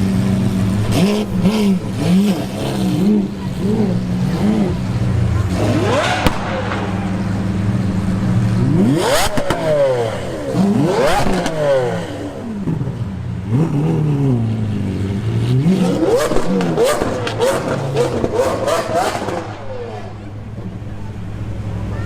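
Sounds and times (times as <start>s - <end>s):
sports car engine revving: 0.0s - 22.0s
exhaust cracks: 0.7s - 13.9s.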